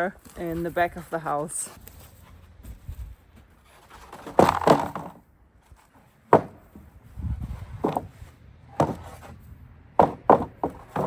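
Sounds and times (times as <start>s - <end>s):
wooden boards knocking: 4.1s - 5.2s, 6.3s - 6.9s, 7.7s - 9.3s, 10.0s - 11.0s.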